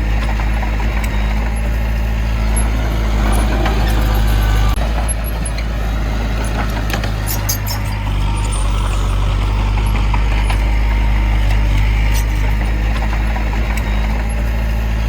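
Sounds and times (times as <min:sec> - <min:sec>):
diesel engine running: 0:00.0 - 0:15.0
metallic clanks and rattles: 0:06.4 - 0:08.1.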